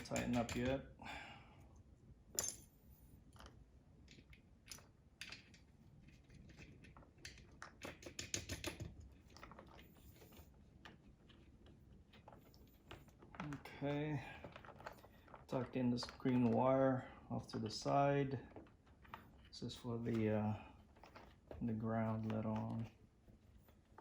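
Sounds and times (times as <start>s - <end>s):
small metal parts clinking: 2.3s - 10.1s.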